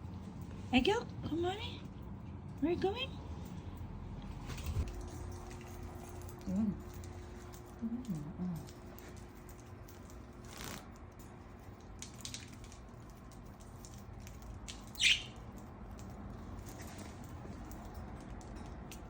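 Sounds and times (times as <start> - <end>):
budgerigar chirp: 15.0 - 15.4.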